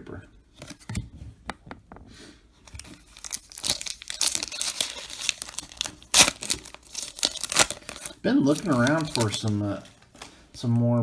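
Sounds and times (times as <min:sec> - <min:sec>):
wrapper tearing: 0:02.7 - 0:10.4
wrapper crinkling: 0:02.7 - 0:10.5.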